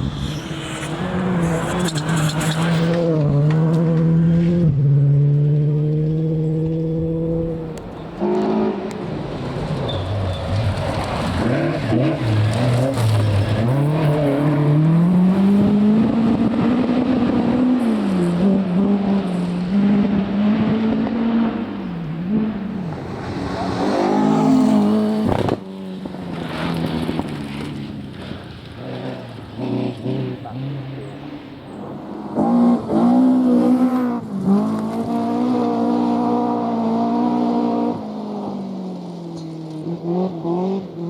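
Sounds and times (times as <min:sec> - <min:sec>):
rally car engines revving: 0:00.0 - 0:41.0.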